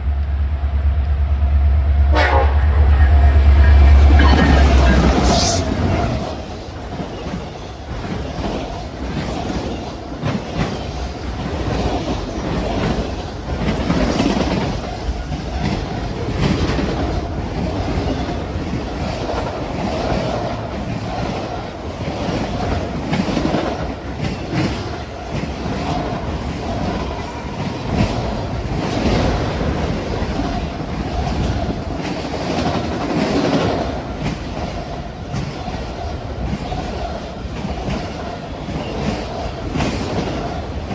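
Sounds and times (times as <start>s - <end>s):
train wheels clacking over rail joints: 0.0s - 40.9s.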